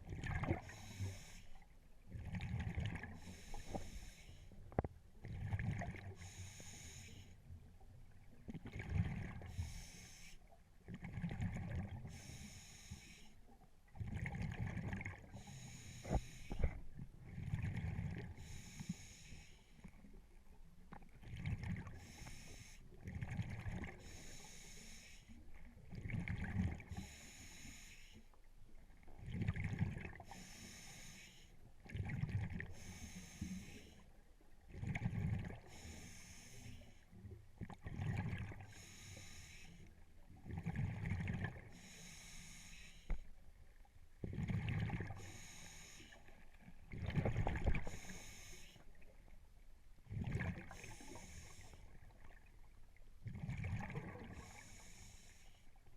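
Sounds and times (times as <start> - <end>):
exhaled bubbles rumbling: 0.0 - 0.8, 2.1 - 3.2, 4.8 - 6.2, 8.1 - 9.5, 13.9 - 15.4, 16.1 - 18.4, 23.0 - 24.0, 25.8 - 26.9, 29.1 - 30.2, 34.6 - 35.7, 37.6 - 38.7, 40.4 - 41.7, 44.2 - 45.2, 46.8 - 48.0, 50.0 - 51.0, 51.9 - 54.5
regulator hiss on inhale: 0.6 - 1.7, 3.2 - 4.6, 6.2 - 7.4, 9.4 - 10.5, 12.1 - 13.5, 15.3 - 16.8, 18.3 - 19.9, 22.0 - 22.9, 24.0 - 25.4, 26.9 - 28.4, 30.2 - 31.6, 32.7 - 34.1, 35.6 - 37.2, 38.7 - 40.0, 41.7 - 43.4, 45.1 - 46.5, 47.7 - 49.0, 50.7 - 52.0, 54.3 - 55.8.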